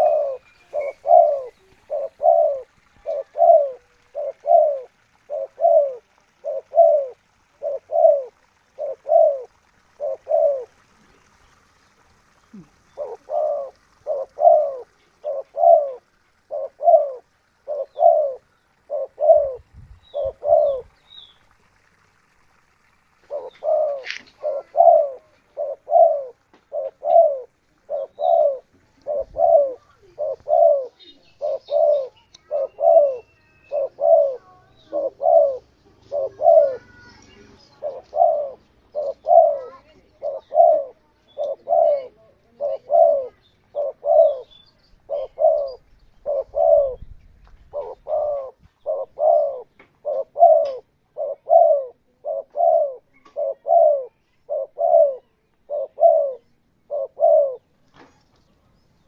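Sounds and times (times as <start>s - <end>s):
faint high bird chirps: 0.0s - 4.6s, 28.0s - 59.0s
dove cooing: 0.0s - 22.3s, 23.1s - 57.8s.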